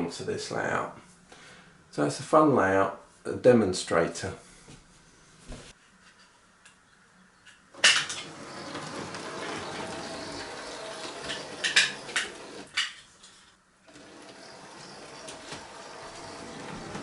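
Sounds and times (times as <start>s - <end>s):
model train motor whirr: 8.2s - 12.7s, 13.9s - 17.0s.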